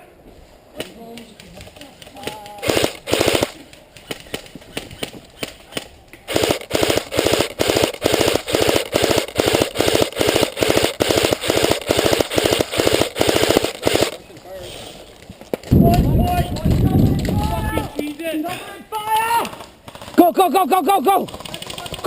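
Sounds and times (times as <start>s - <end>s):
airsoft guns firing: 0.8s - 14.2s.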